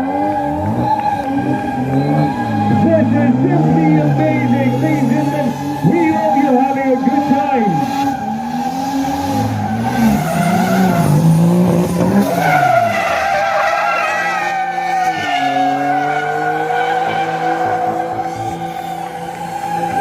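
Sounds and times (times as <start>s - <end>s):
car engine revving: 0.0s - 20.0s
tyres squealing: 0.5s - 20.0s.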